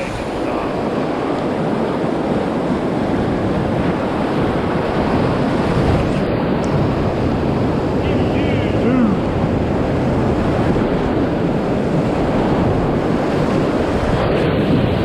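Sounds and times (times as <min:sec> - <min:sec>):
river whitewater rushing: 0:00.0 - 0:09.9.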